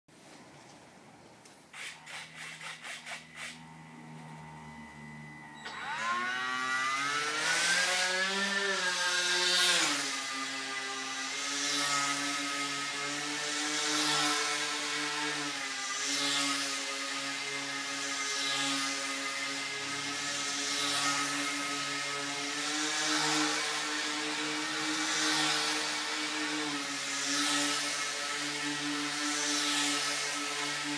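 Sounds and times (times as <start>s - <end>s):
quick clicks: 1.4s - 3.6s
electric motor and propeller whine: 1.8s - 30.9s.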